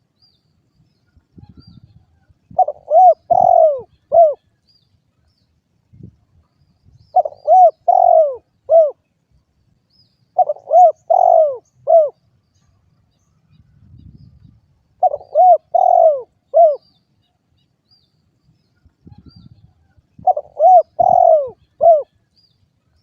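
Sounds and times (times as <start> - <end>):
faint high bird chirps: 0.0 - 9.2, 9.9 - 23.0
dove cooing: 2.5 - 4.4, 7.1 - 9.0, 10.4 - 12.2, 15.0 - 16.9, 20.2 - 22.2.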